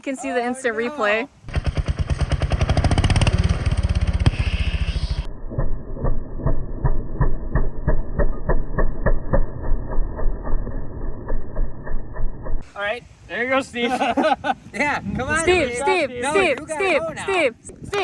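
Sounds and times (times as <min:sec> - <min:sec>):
small motorbike engine running: 0:01.5 - 0:05.3.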